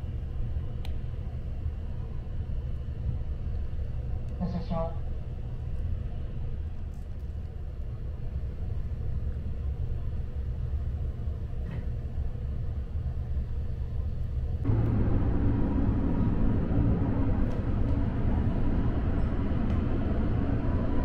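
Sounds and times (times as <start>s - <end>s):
train equipment low hum: 0.0s - 21.0s
train running noise: 0.0s - 21.0s.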